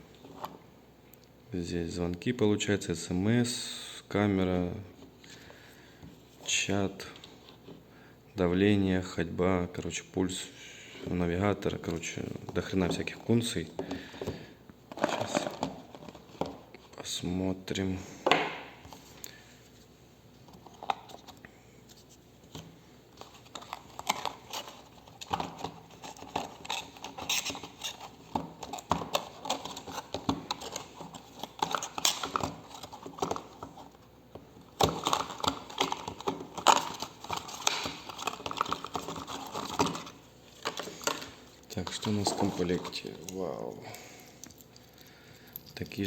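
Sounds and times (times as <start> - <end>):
cardboard packaging rustling: 14.9 - 17.0, 22.1 - 43.7.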